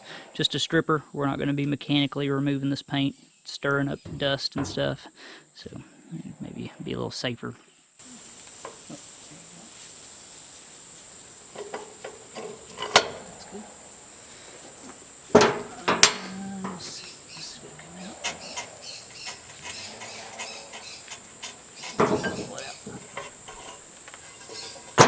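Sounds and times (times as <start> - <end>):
sharp knocks and clanks: 4.0 - 5.0, 11.4 - 13.5, 14.8 - 25.0
high-pitched whine: 8.0 - 24.9.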